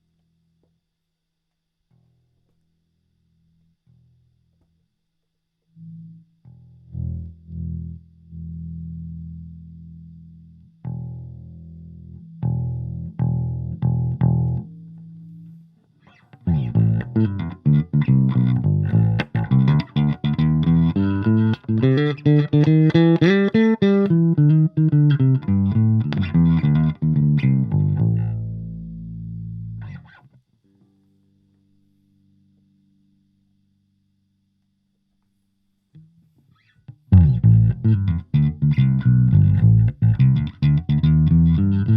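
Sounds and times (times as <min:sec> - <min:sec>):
electric bass guitar notes: 0:05.8 - 0:15.4, 0:16.0 - 0:30.2, 0:37.1 - 0:41.9.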